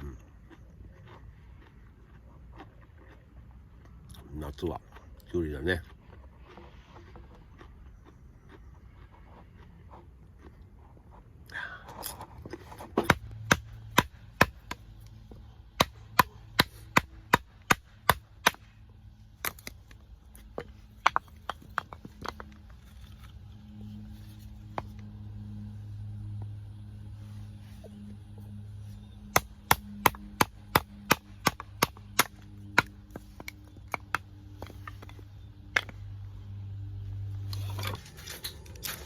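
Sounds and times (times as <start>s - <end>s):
chopping on wood: 13.0s - 14.8s, 15.8s - 18.7s, 29.3s - 36.0s.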